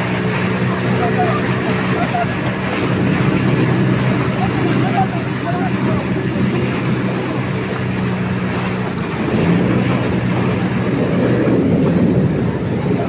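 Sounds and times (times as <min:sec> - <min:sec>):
motorboat engine humming: 0:00.0 - 0:13.0
water noise: 0:00.0 - 0:13.0
wind on microphone: 0:00.0 - 0:13.0.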